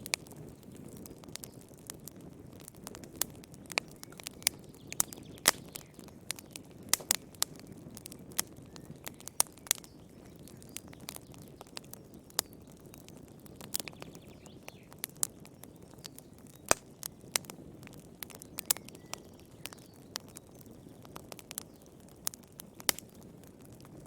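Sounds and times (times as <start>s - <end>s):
soft low rushing of flames: 0.0s - 24.0s
wood fire crackling and popping: 0.0s - 24.0s.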